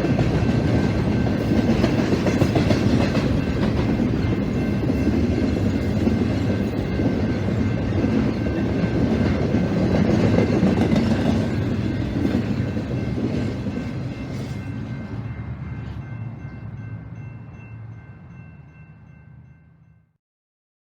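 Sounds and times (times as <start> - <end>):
wheels clattering on rails: 0.0 - 16.6
freight train rumbling past: 0.0 - 19.9.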